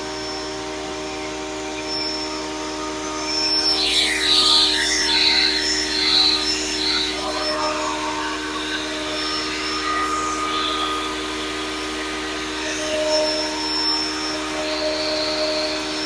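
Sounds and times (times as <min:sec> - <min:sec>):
jointer planer motor whine: 0:00.0 - 0:16.0.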